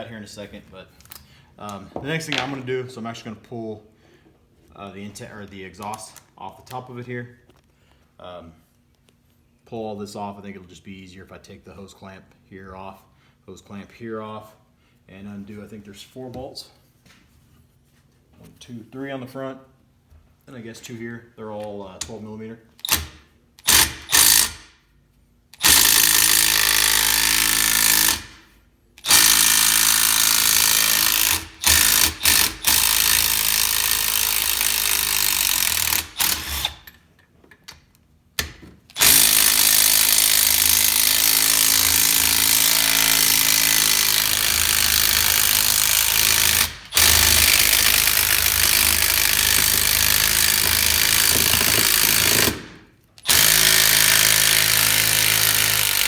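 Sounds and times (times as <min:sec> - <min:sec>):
impact wrench hammering: 0:22.8 - 0:24.8, 0:25.6 - 0:36.9, 0:38.4 - 0:56.0.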